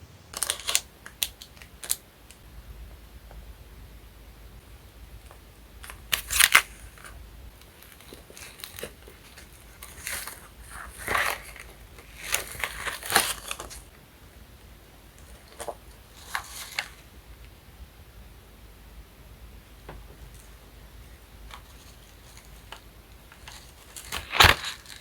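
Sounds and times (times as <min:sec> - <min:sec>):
paper crinkling and rustling: 0:00.3 - 0:02.4, 0:05.3 - 0:13.9, 0:15.1 - 0:17.1, 0:20.1 - 0:25.0.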